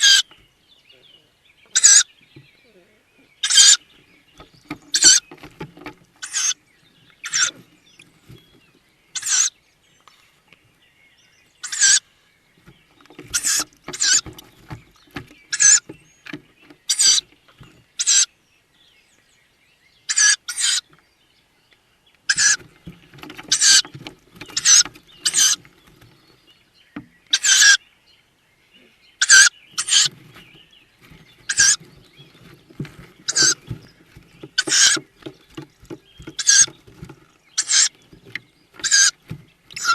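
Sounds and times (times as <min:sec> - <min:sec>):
owl chicks wheezy hissing calls: 0:01.7 - 0:02.1, 0:03.4 - 0:03.8, 0:06.2 - 0:06.6, 0:07.2 - 0:07.6, 0:09.1 - 0:10.5, 0:11.6 - 0:12.3, 0:13.3 - 0:14.2, 0:16.9 - 0:17.2, 0:18.0 - 0:18.3, 0:20.1 - 0:20.8, 0:22.3 - 0:22.7, 0:23.5 - 0:23.9, 0:24.5 - 0:25.6, 0:27.3 - 0:27.8, 0:28.8 - 0:30.3, 0:31.4 - 0:31.9, 0:33.2 - 0:33.6, 0:34.6 - 0:35.0, 0:36.4 - 0:36.7, 0:37.6 - 0:38.0, 0:38.8 - 0:39.9
scratching and rustling in nest box: 0:03.4 - 0:09.5, 0:12.6 - 0:18.2, 0:22.3 - 0:26.6, 0:29.2 - 0:39.9.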